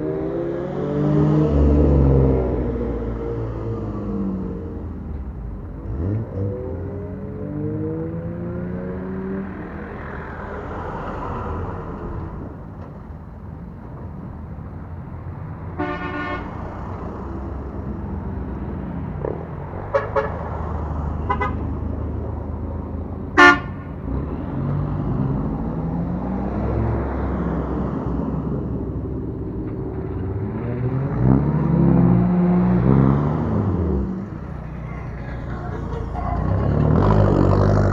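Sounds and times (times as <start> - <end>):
car engines revving: 0.0 - 37.9
car horn toots: 15.8 - 16.5, 19.9 - 20.4, 21.3 - 21.6, 23.4 - 23.9.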